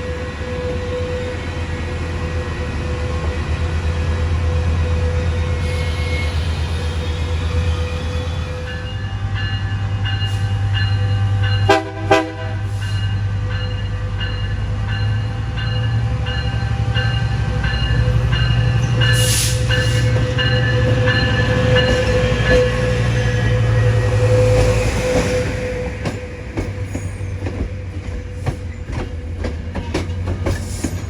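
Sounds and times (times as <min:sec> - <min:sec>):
train rumbling past: 0:00.0 - 0:31.0
locomotive horn blasts: 0:09.1 - 0:12.7.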